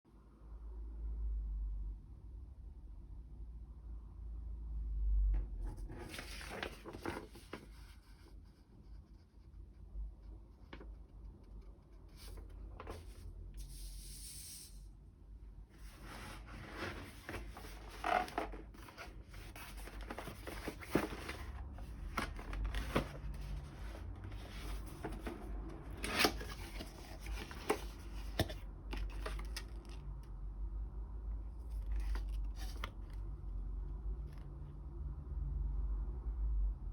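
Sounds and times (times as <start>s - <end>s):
long hissing rip: 13.6s - 14.9s
paper rustling and tearing: 15.8s - 30.0s, 31.6s - 33.2s.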